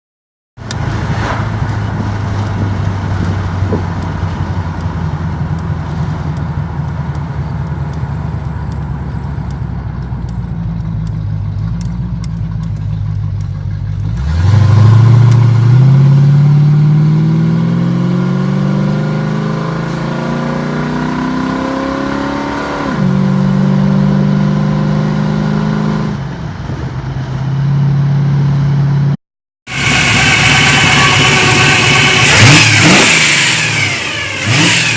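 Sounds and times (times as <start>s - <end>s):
car engine idling and accelerating: 0.6s - 34.9s.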